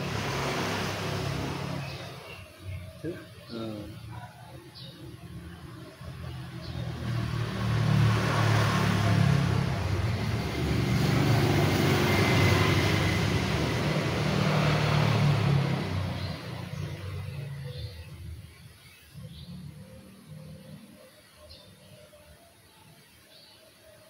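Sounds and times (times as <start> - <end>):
vehicle driving past: 0.0 - 4.1, 4.8 - 21.4.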